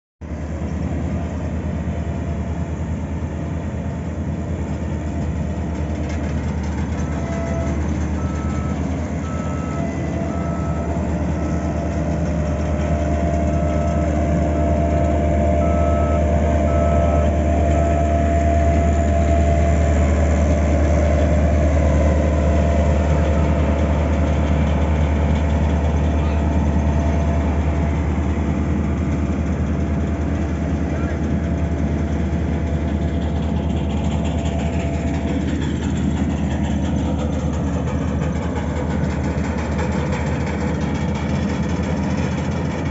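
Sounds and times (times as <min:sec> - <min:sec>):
heavy machinery engine running: 0:00.2 - 0:42.9
reversing alarm beeping: 0:07.0 - 0:19.8, 0:22.3 - 0:23.9.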